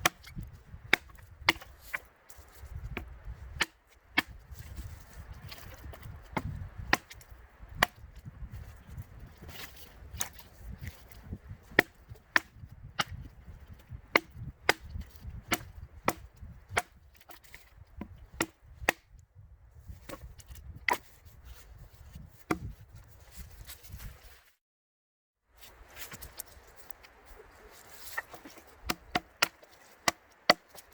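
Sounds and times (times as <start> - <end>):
axe chopping firewood: 0.0 - 19.2, 19.9 - 21.2, 22.5 - 22.8, 28.1 - 30.9.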